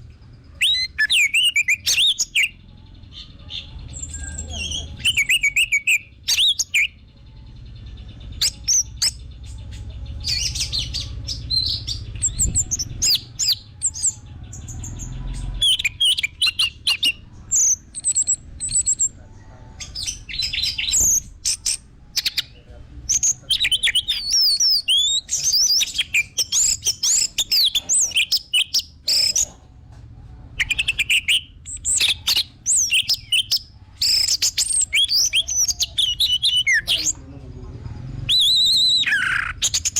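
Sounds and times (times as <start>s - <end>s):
low rumble: 7.0s - 24.4s.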